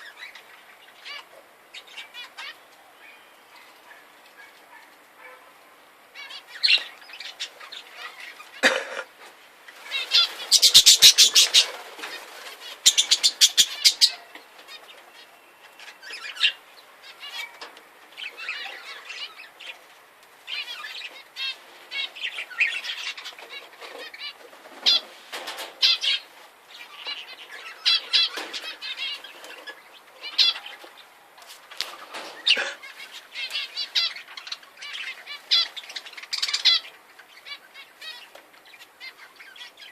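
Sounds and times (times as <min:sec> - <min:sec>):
birds chirping: 0:00.0 - 0:39.9
wings fluttering: 0:09.7 - 0:15.0, 0:30.4 - 0:34.1.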